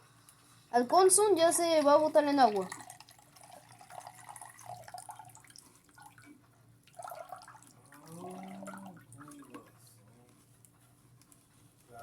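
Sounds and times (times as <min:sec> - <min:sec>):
water trickling and dripping: 0:01.7 - 0:09.7.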